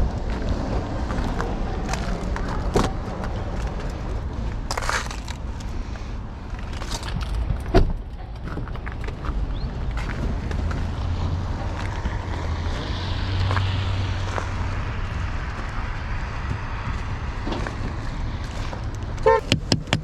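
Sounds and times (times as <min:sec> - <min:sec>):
vehicle rumbling past: 0:00.0 - 0:06.7, 0:07.4 - 0:19.6
city street traffic: 0:00.0 - 0:20.0
sharp knocks: 0:19.3 - 0:20.0.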